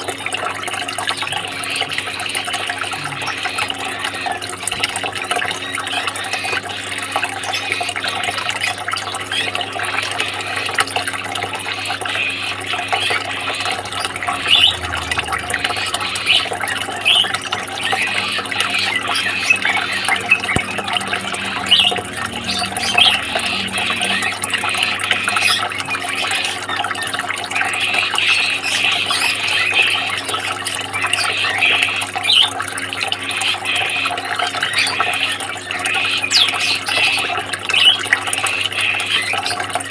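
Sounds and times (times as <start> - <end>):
faint steady hum: 0.0 - 39.9
water trickling and splashing: 0.0 - 39.9.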